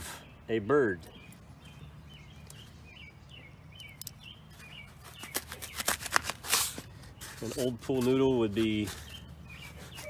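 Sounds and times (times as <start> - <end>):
small birds chirping: 0.0 - 10.0
sharp clicks: 3.8 - 4.2.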